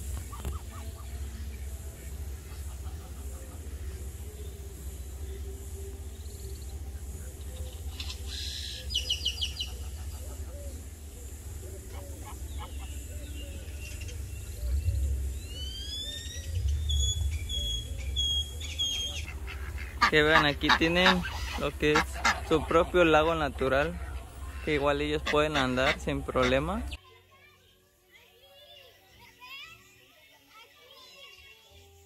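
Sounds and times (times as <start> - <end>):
small birds chirping: 0.0 - 32.0
low rumble: 10.7 - 20.0
rising whistled bird calls: 11.9 - 19.3.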